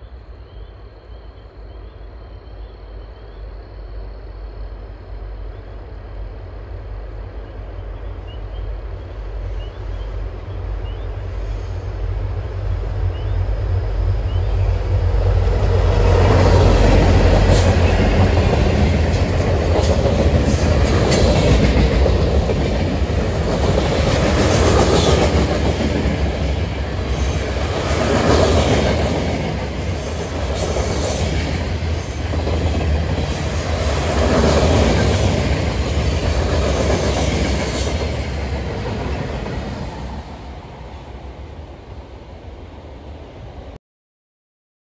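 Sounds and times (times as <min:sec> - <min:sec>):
diesel locomotive rumble: 0:02.9 - 0:41.5
train wheels clattering on rails: 0:14.4 - 0:40.4.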